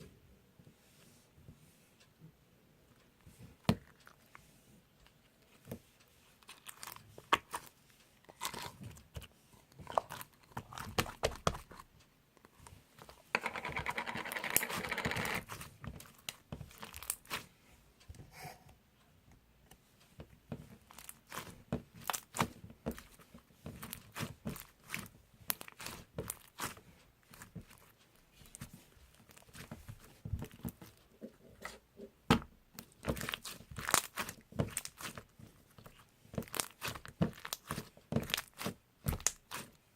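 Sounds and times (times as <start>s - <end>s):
crinkling and tearing by hand: 33.0s - 39.8s.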